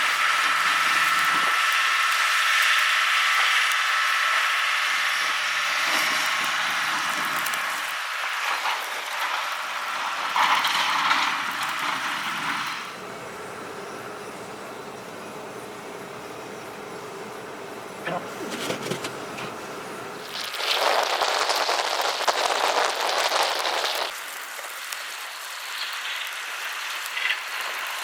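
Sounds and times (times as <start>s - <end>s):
car interior driving noise: 15.4s - 20.2s
small rattles and knocks: 18.3s - 19.6s.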